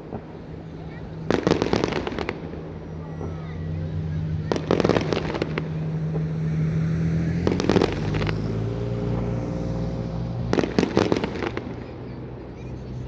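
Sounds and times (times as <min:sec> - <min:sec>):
firework crackles and pops: 0:00.0 - 0:03.5, 0:04.4 - 0:06.4, 0:07.4 - 0:09.3, 0:10.4 - 0:12.1
vehicle engine hum: 0:00.0 - 0:13.0.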